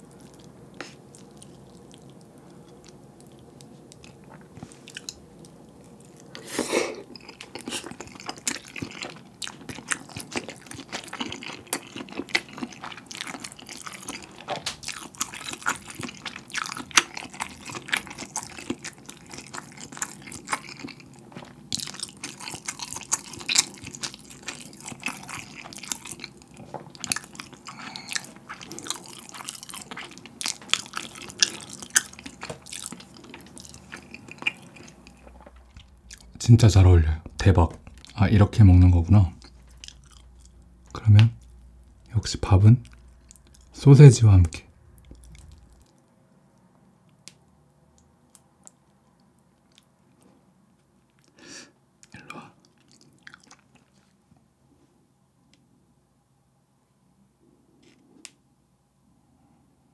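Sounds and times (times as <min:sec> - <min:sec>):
chewing mouth sounds: 0:00.0 - 0:43.8, 0:44.7 - 0:46.0, 0:52.0 - 0:54.2.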